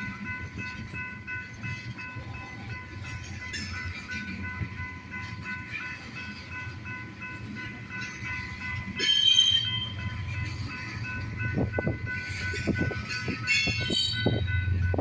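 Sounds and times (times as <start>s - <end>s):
high-pitched train whine: 0.0s - 15.0s
train clanks: 0.0s - 15.0s
train rumbling: 0.0s - 15.0s
train wheel screech: 9.0s - 10.0s, 12.3s - 14.6s.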